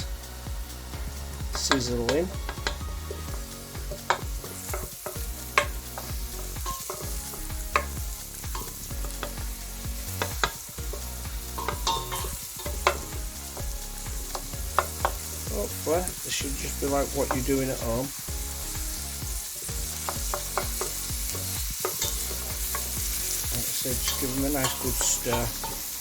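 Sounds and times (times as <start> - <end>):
onions sizzling in a pan: 0.0 - 26.0
utensil knocking against pan: 1.6 - 13.7, 14.3 - 15.3, 16.4 - 18.0, 19.8 - 23.1, 23.8 - 25.9.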